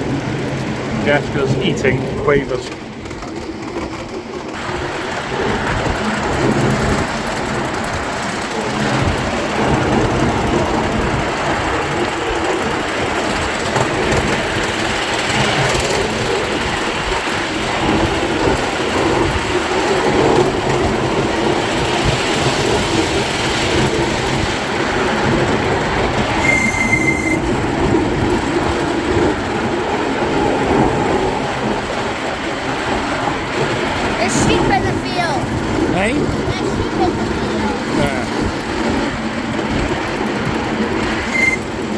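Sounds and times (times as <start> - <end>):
train wheels rumbling on rails: 0.0 - 41.9
high-pitched squeal: 26.4 - 27.5.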